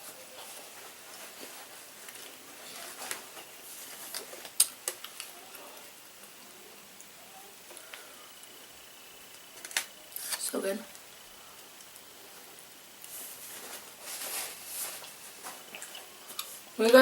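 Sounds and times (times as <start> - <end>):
person chewing food: 15.0 - 16.6.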